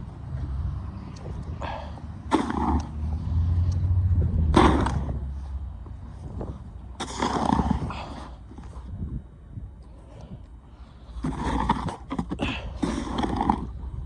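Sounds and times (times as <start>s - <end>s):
low steady rumble: 0.0s - 14.0s
shovel scraping snow: 11.1s - 13.7s.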